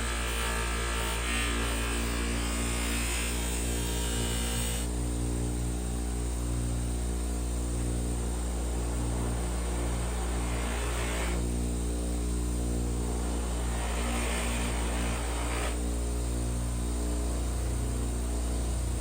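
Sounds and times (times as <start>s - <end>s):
power tool motor running: 0.0s - 5.0s, 8.1s - 19.0s
hissing grinding noise: 13.2s - 15.8s.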